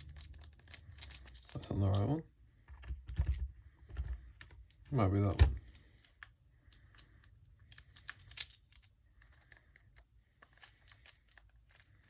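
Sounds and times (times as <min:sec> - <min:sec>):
screwdriver bits clicking and rattling: 0:00.0 - 0:02.2, 0:05.6 - 0:12.0.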